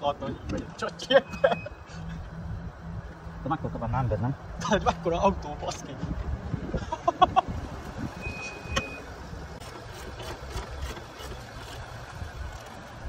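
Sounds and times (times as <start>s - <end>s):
vehicle engine rumbling: 0.0s - 13.0s
short electronic beep: 8.2s - 9.1s.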